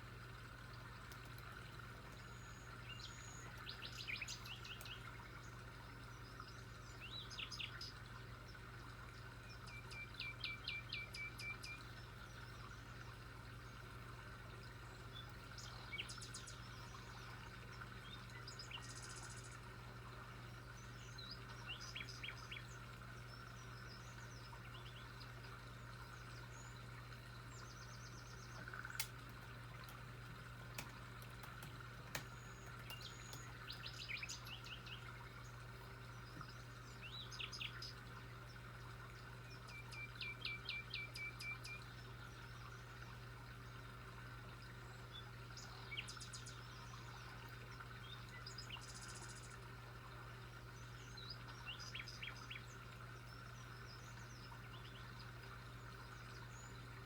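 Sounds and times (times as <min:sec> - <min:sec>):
birds chirping and trilling: 0:02.0 - 0:08.0, 0:26.2 - 0:38.7.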